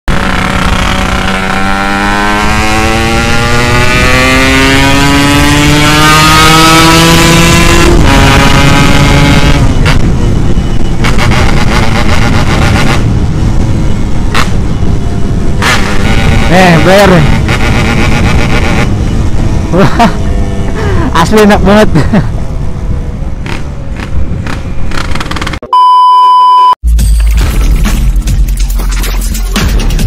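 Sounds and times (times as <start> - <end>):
motorcycle accelerating: 0.1 - 25.6
exhaust crackling and popping: 23.4 - 25.6, 26.8 - 30.0.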